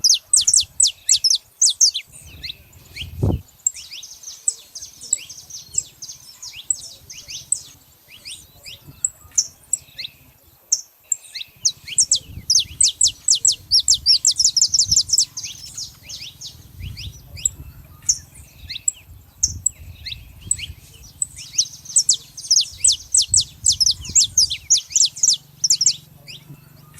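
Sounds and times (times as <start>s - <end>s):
finches chirping: 0.0s - 26.9s
faint low rumble: 11.6s - 26.9s.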